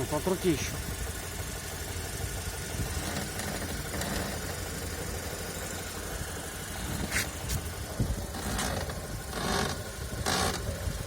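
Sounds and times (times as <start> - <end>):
car engine idling: 0.0 - 11.0
suspension spring creak: 2.7 - 6.0, 6.7 - 11.0.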